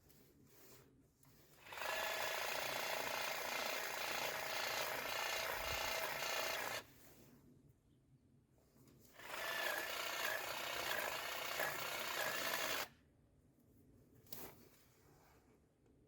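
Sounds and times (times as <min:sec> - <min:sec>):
power tool running: 0:01.6 - 0:06.8, 0:09.2 - 0:12.9.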